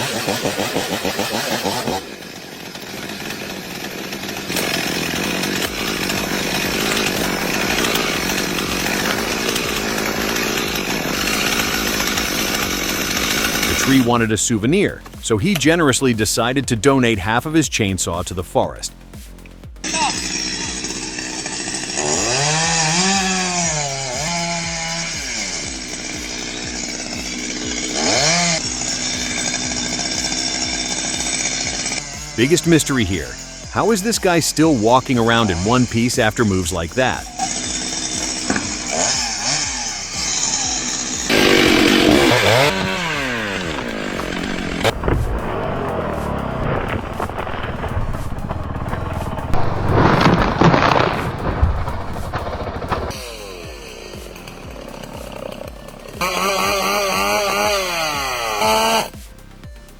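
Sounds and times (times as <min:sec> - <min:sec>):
chainsaw running: 0:00.0 - 0:59.9.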